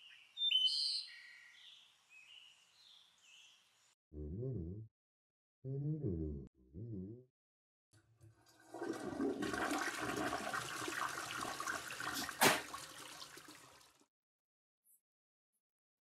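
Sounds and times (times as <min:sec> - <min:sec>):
water rushing: 0:08.6 - 0:13.9.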